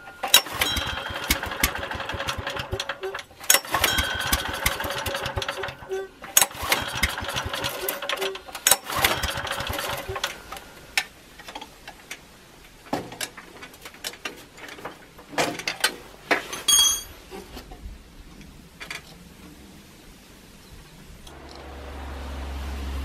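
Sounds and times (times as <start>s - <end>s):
ringing metal clink: 0.0s - 2.4s, 3.0s - 6.1s, 16.6s - 17.2s
small generator engine rattling: 0.0s - 11.7s
handling clicks and knocks: 0.0s - 19.2s.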